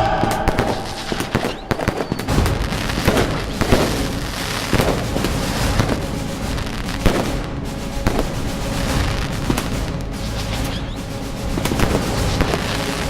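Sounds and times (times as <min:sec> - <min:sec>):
low rumble: 0:00.0 - 0:10.4
fireworks crackling and banging: 0:00.2 - 0:10.8, 0:11.5 - 0:13.0.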